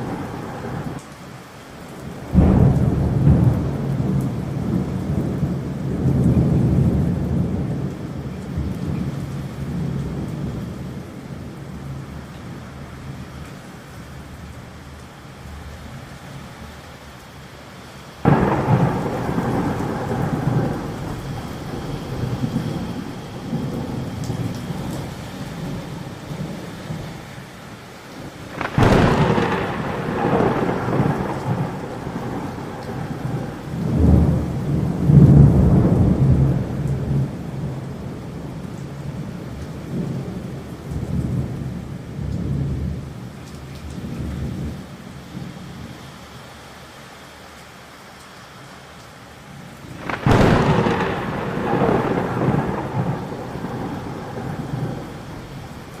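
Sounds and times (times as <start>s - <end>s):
thunder rumbling: 0.0s - 1.0s, 2.1s - 12.3s, 18.2s - 27.5s, 28.2s - 43.1s, 49.8s - 56.0s
steady rain: 0.0s - 56.0s.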